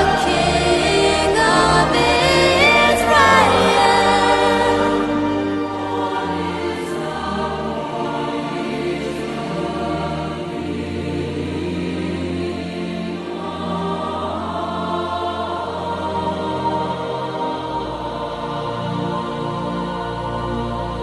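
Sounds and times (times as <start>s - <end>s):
choir singing with accompaniment: 0.0s - 21.0s.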